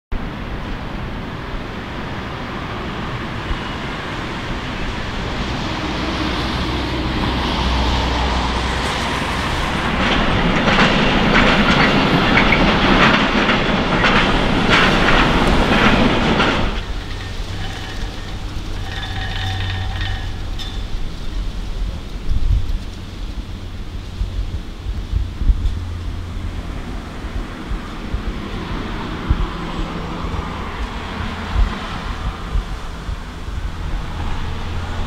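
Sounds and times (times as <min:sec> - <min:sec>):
train rumble: 0:00.1 - 0:35.0
train wheels clacking over rail joints: 0:04.4 - 0:23.0.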